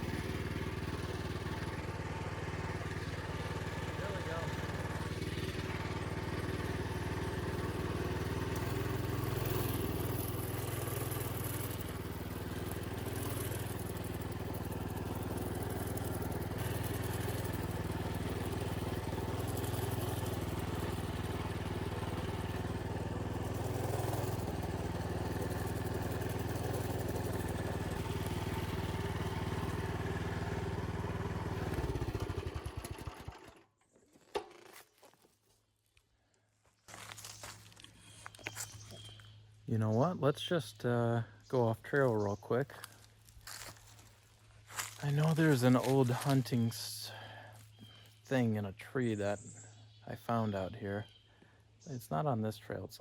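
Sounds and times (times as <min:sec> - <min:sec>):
small engine revving: 0:00.0 - 0:34.6.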